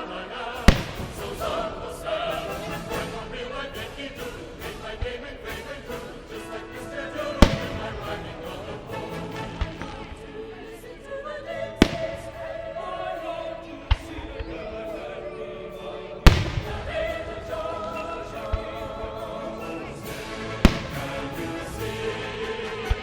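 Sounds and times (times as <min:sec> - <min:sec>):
choir singing: 0:00.0 - 0:23.0
fireworks booming: 0:00.6 - 0:06.6, 0:07.2 - 0:10.6, 0:11.8 - 0:13.2, 0:16.2 - 0:22.1.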